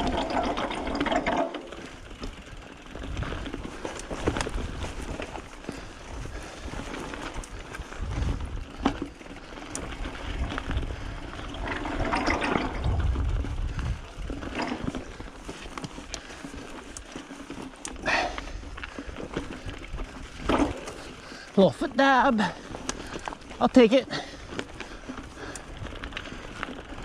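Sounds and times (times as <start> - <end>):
bike knocks and clatters: 0.0 - 5.9, 11.5 - 21.2
wind rushing on microphone: 7.9 - 8.8, 10.3 - 14.6.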